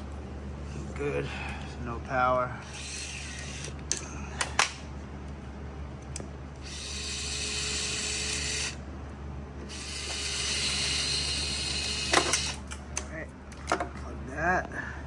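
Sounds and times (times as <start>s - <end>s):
power drill running: 2.6s - 3.8s, 6.6s - 8.8s, 9.6s - 12.6s.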